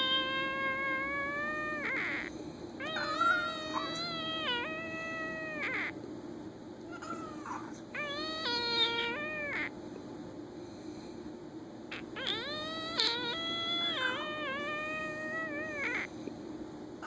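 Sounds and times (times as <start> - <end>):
man imitating cat meows: 0.0 - 2.2, 2.8 - 5.9.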